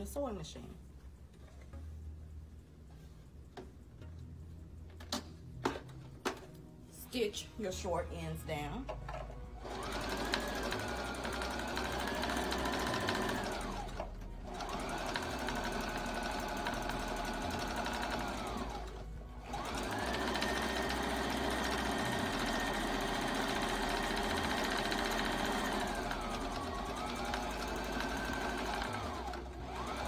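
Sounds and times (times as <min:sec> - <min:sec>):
sewing machine motor whine: 0:09.6 - 0:30.0.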